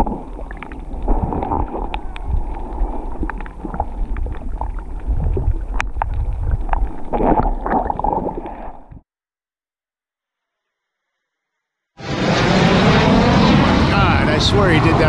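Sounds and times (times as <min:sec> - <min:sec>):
low rumble: 0:00.0 - 0:07.7, 0:12.0 - 0:15.0
underwater sloshing and gurgling: 0:00.0 - 0:09.0.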